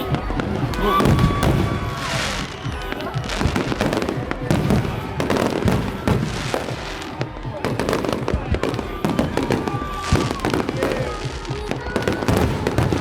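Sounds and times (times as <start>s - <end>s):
fireworks and firecrackers banging: 0.0s - 13.0s.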